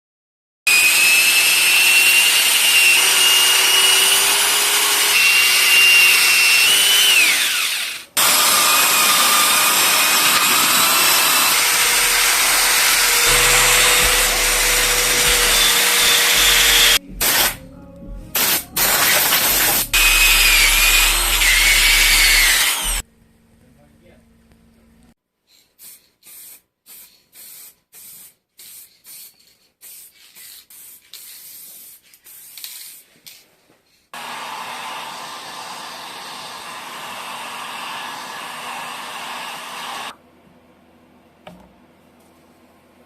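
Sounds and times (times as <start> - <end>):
electric power tool whining: 0.7 - 17.6, 18.4 - 23.0, 34.2 - 40.2.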